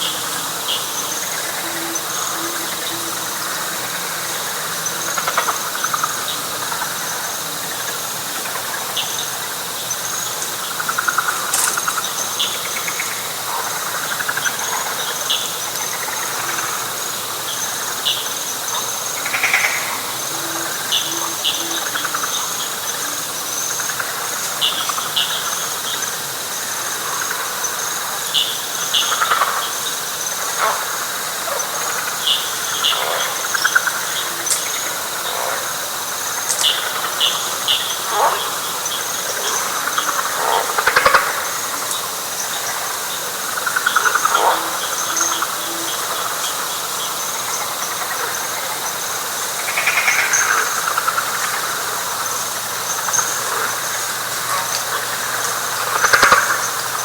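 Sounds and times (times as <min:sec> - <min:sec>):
steady high insect trill: 0:00.0 - 0:57.0
frog chirps and trills: 0:00.7 - 0:57.0.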